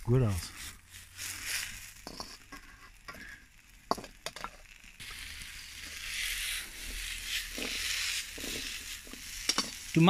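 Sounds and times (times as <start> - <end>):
vegetables sizzling in wok: 0.0 - 10.0
wok clicking and knocking: 2.0 - 3.2, 3.9 - 4.7, 6.8 - 10.0.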